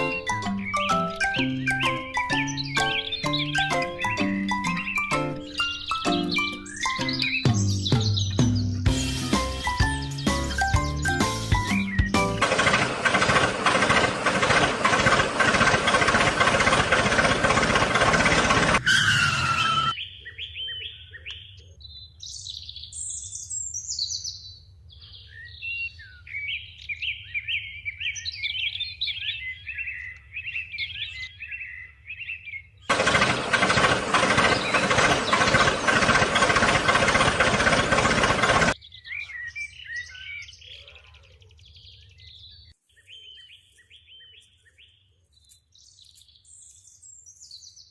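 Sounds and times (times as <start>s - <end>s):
small birds chirping: 0.0s - 47.9s
loud steady noise: 12.2s - 19.9s, 32.9s - 38.8s.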